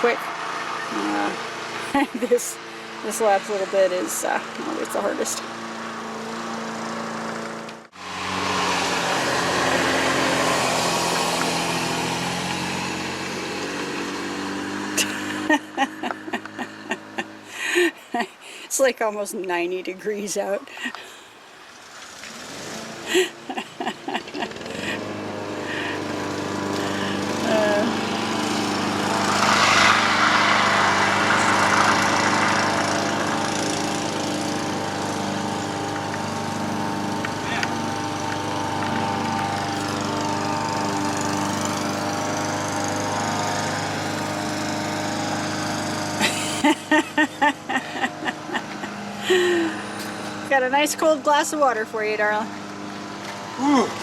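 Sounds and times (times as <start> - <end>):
vehicle engine running: 0.0 - 18.3, 21.8 - 54.0
rushing noise: 28.3 - 34.2.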